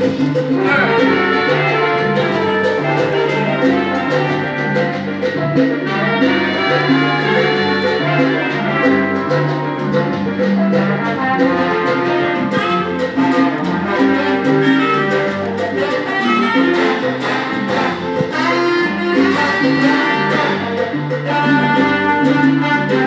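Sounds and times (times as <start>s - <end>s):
salsa music with brass: 0.0s - 23.0s.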